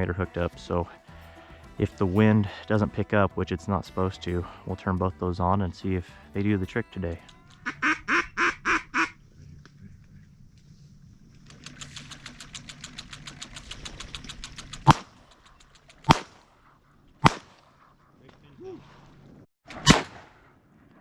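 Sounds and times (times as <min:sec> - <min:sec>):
rapid clicking rattle: 0:11.4 - 0:16.1
shotgun shots: 0:14.9 - 0:15.2, 0:16.0 - 0:16.5, 0:17.2 - 0:17.7, 0:19.7 - 0:20.6.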